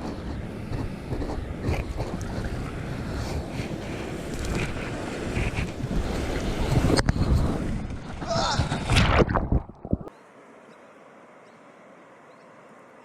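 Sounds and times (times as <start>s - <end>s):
wind noise on microphone: 0.0s - 10.1s.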